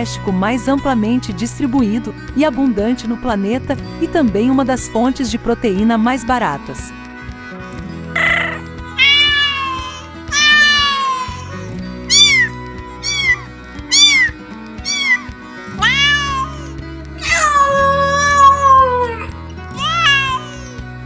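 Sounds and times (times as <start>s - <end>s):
background music: 0.0s - 21.0s
animal calling: 8.2s - 20.7s.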